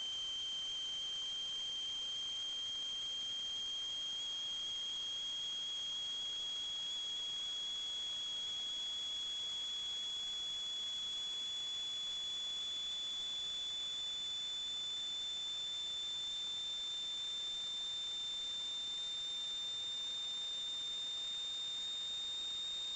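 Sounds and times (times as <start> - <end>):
high-pitched electronic whine: 0.0 - 15.2.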